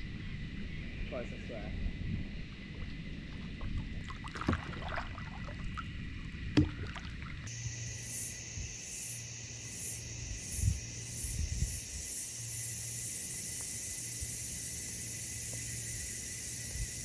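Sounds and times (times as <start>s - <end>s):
gear knocking on kayak hull: 6.6s - 7.0s.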